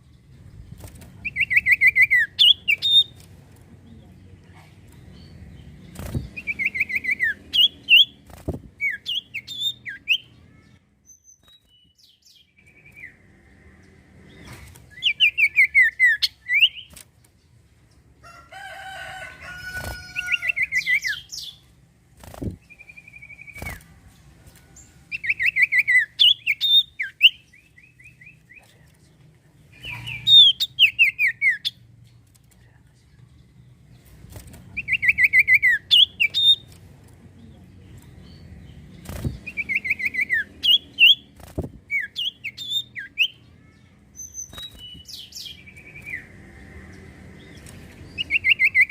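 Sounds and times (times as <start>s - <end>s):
bird whistled song: 1.2s - 3.2s, 6.1s - 8.2s, 8.8s - 10.4s, 11.1s - 13.2s, 14.9s - 16.9s, 22.6s - 23.8s, 25.1s - 28.4s, 34.8s - 36.6s, 39.3s - 41.3s, 41.9s - 43.4s, 44.2s - 46.2s, 48.2s - 48.9s.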